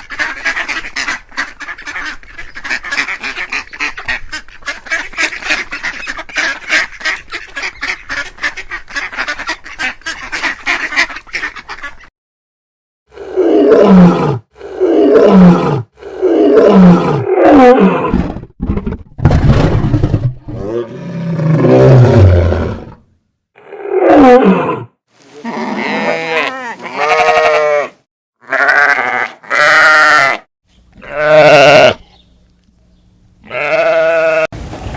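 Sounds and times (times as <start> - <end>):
ducks quacking: 0.0 - 12.1
big cat roaring: 13.1 - 23.0, 23.6 - 24.9.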